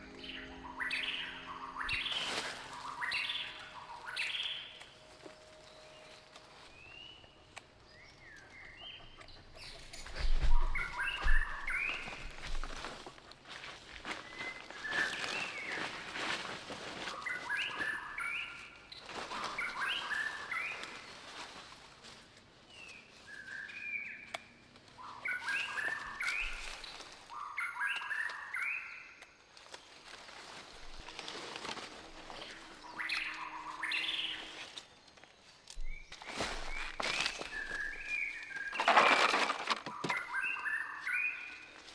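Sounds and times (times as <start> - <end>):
bird song: 0.0 - 21.8, 22.6 - 41.9
rustling: 0.9 - 8.4, 18.8 - 23.3, 29.6 - 40.6.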